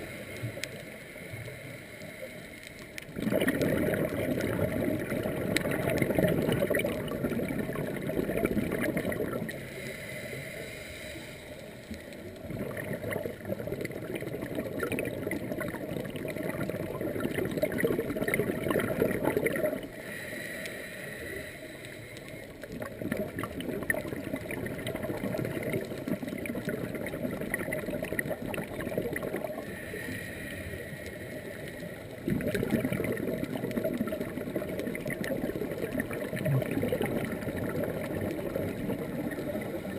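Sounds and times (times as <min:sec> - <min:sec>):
diver inhaling with faint hiss: 0:00.0 - 0:03.0, 0:09.5 - 0:12.3, 0:19.9 - 0:22.6, 0:29.6 - 0:32.2.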